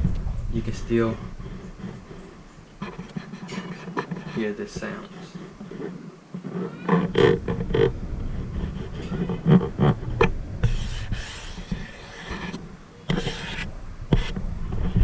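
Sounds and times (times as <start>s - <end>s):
low rumble: 0.0s - 2.4s, 7.3s - 10.7s
hand scraping on pole: 0.6s - 15.0s.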